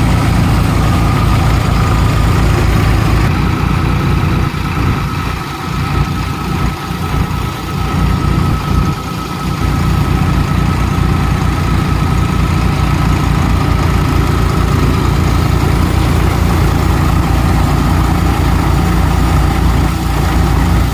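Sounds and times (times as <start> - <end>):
steady high whine: 0.0 - 20.9
tractor diesel engine running: 0.0 - 20.9.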